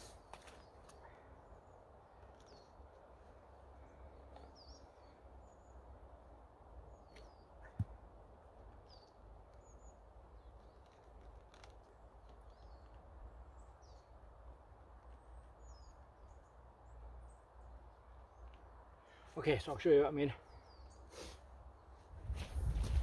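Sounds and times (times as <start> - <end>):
faint bird chirps: 20.4 - 22.0.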